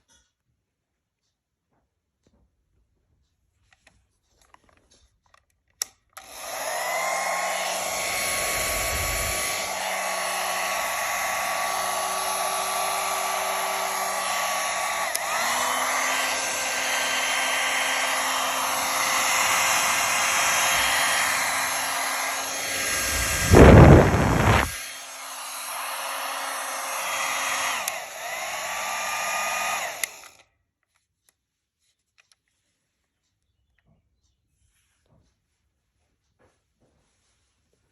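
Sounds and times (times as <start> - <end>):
hair dryer switch click: 5.8 - 30.4
hair dryer fan whirring: 6.2 - 30.4.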